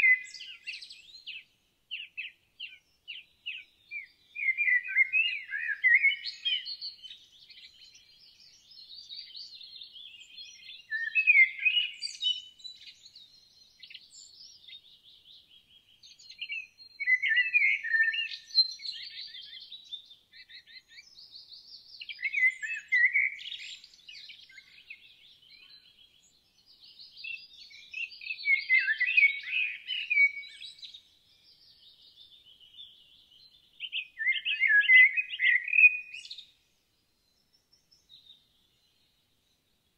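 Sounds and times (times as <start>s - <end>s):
birds chirping and twittering: 0.0s - 39.9s
songbird warbled song: 0.0s - 39.9s.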